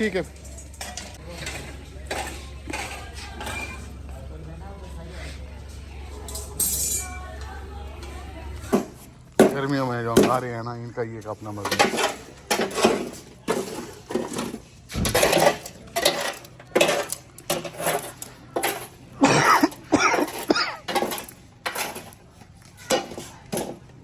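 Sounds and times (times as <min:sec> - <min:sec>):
plates and cutlery clinking: 0:00.0 - 0:04.2, 0:11.5 - 0:22.2
voices talking: 0:00.0 - 0:14.2.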